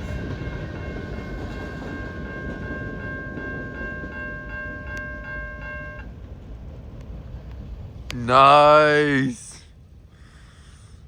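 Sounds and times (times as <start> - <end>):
railroad crossing bell ringing: 0.0 - 6.5
freight cars rumbling past: 0.0 - 10.2.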